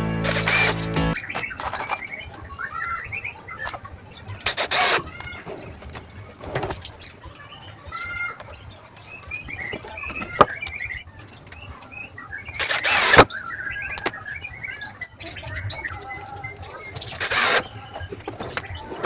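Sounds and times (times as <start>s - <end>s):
loud rasping noise: 0.0s - 1.2s
small birds chirping: 0.5s - 19.0s.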